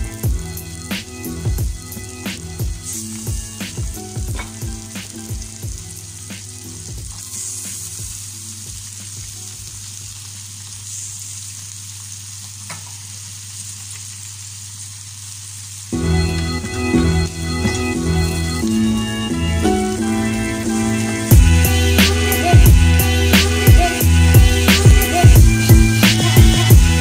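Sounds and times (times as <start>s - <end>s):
background music: 0.0s - 9.7s, 15.9s - 27.0s
chicken and onions sizzling in a pot: 0.0s - 27.0s
sharp knocks in pot: 4.2s - 4.9s.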